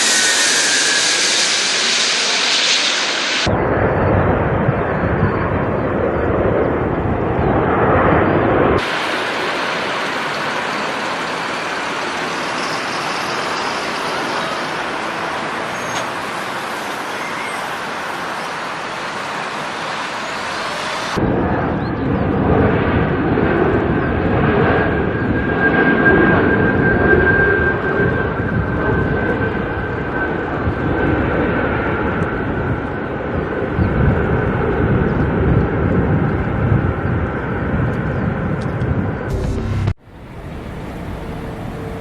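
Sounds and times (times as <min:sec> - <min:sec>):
high engine whine: 0:00.0 - 0:03.7, 0:08.3 - 0:21.3, 0:39.2 - 0:42.0
deep jet engine rumble: 0:00.0 - 0:42.0
jet engine roar: 0:00.0 - 0:42.0.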